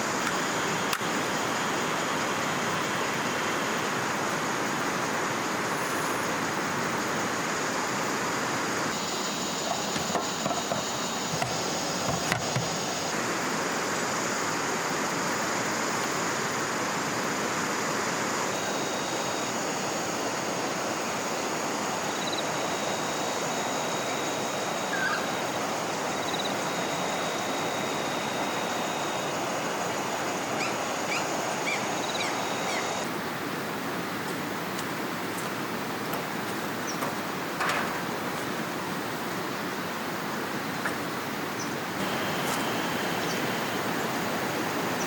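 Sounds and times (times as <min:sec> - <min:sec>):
river water rushing: 0:00.0 - 0:45.0
high-pitched whine: 0:08.9 - 0:13.2, 0:18.5 - 0:33.2, 0:42.0 - 0:45.0
bird chirps: 0:24.9 - 0:25.4.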